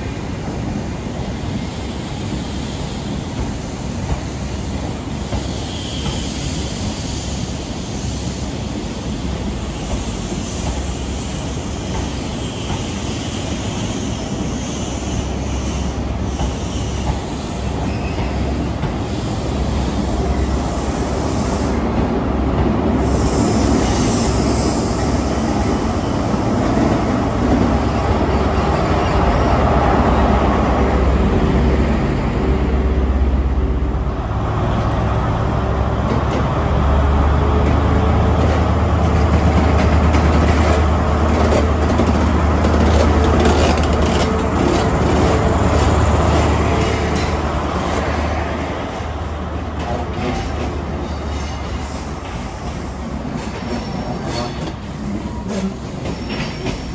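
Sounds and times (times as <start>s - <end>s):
diesel train engine: 0.0s - 56.9s
train coaches rolling over rail joints: 35.8s - 56.9s.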